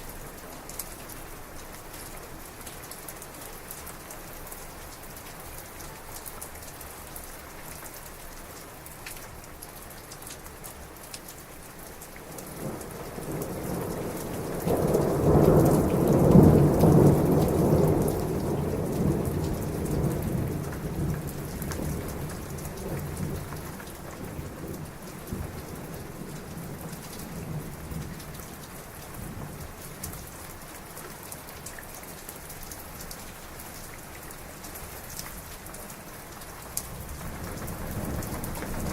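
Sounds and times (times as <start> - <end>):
heavy rain falling: 0.0 - 38.9
rolling thunder: 12.6 - 28.4, 36.9 - 38.9.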